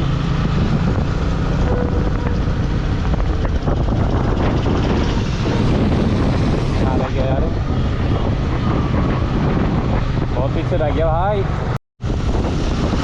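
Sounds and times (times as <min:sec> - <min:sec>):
motorcycle engine running: 0:00.0 - 0:10.3
wind rushing over microphone: 0:00.0 - 0:13.0.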